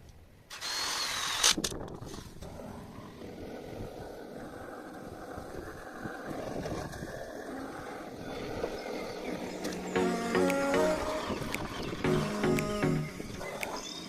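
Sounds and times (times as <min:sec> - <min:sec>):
background music: 0:09.9 - 0:13.7.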